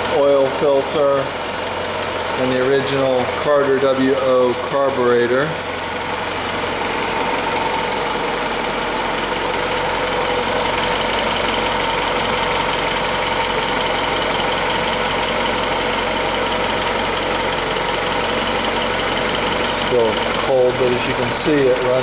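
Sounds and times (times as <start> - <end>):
four-cylinder engine idling: 0.0 - 22.0.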